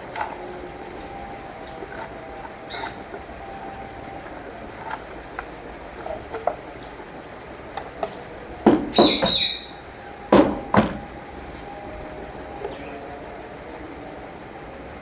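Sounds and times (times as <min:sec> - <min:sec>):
bird chirping: 0:00.0 - 0:15.0
knocking on wooden box: 0:08.6 - 0:09.5, 0:10.3 - 0:11.1.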